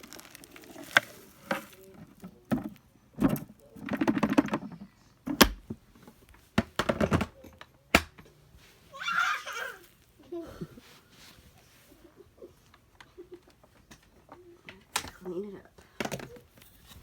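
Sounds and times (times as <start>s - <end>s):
rustling scrapes: 0.0s - 2.2s, 10.8s - 12.0s.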